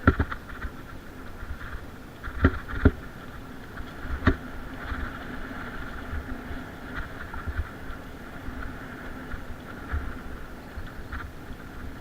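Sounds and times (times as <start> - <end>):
bike knocking over bumps: 0.0 - 0.8, 2.2 - 3.1, 3.7 - 6.3
mountain bike rolling on trail: 0.0 - 12.0.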